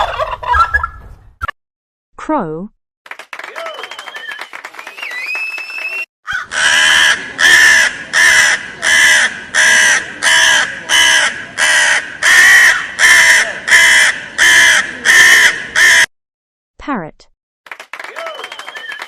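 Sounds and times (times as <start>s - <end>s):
crow cawing: 6.3s - 16.1s.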